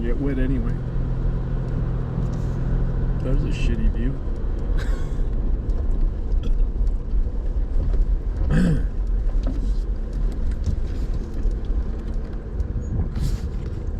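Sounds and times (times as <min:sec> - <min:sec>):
engine and tyre rumble: 0:00.0 - 0:13.9.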